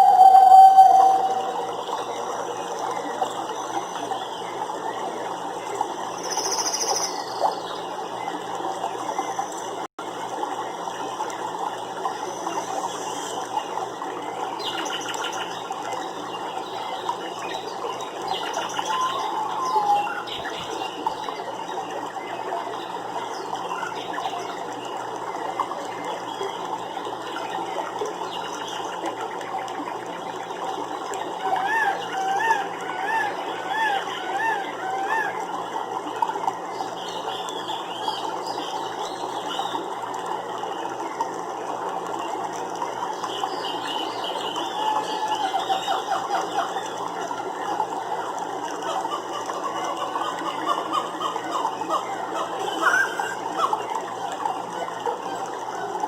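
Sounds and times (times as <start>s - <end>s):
bird chirps: 0.0s - 2.1s.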